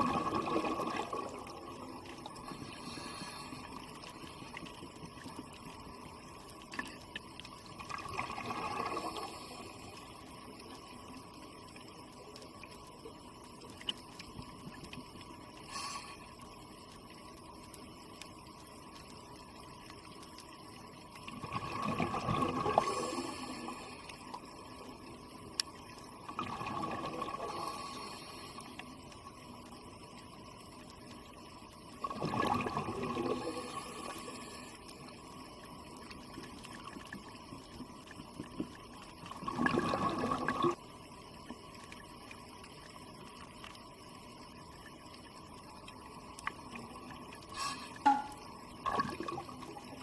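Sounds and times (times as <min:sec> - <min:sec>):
underwater bubbling exhalations: 0:00.0 - 0:01.8, 0:07.8 - 0:09.3, 0:21.4 - 0:23.4, 0:26.3 - 0:27.8, 0:32.0 - 0:34.1, 0:39.3 - 0:40.8, 0:47.9 - 0:49.9
faint steady hiss: 0:00.0 - 0:50.0.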